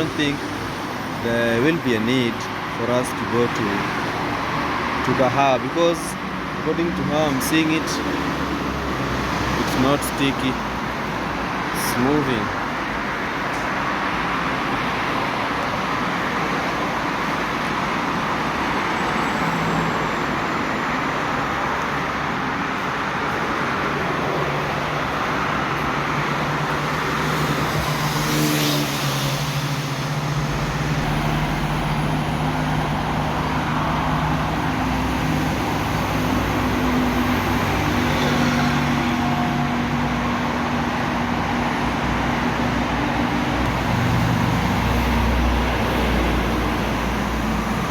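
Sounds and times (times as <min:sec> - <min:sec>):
highway traffic passing: 0:00.0 - 0:47.9.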